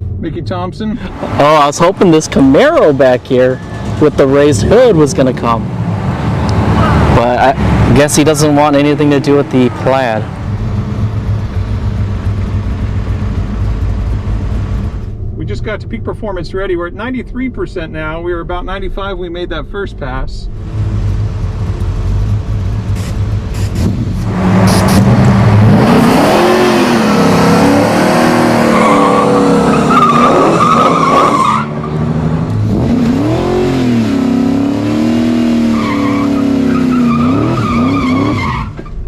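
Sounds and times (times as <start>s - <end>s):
car engine revving: 1.0s - 17.8s, 20.4s - 39.0s
tyres squealing in burnout: 26.8s - 32.0s, 35.4s - 38.9s.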